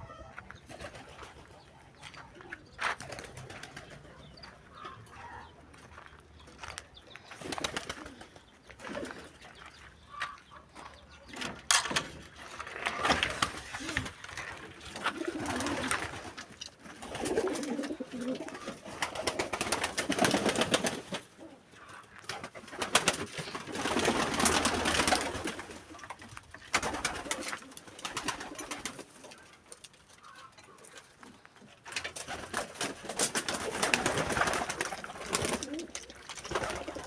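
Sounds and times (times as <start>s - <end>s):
pigeons cooing: 0.0s - 37.0s
clicks and rustling: 10.4s - 18.7s, 34.8s - 37.0s.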